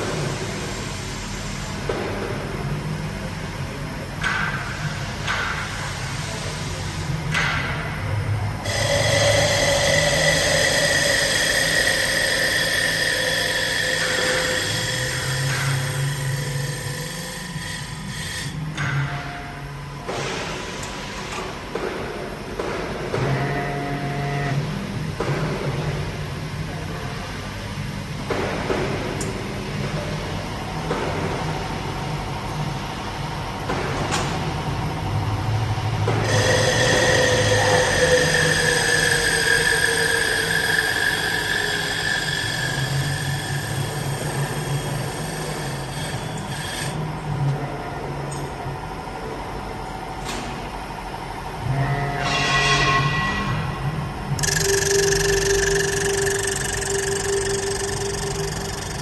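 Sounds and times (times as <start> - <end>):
high-pitched machine whine: 0.0 - 21.8, 22.5 - 28.0, 29.7 - 59.0
wood lathe spindle whining: 8.6 - 18.8, 36.2 - 47.1, 54.4 - 59.0
hiss of wood cutting: 8.7 - 18.6, 36.2 - 47.0.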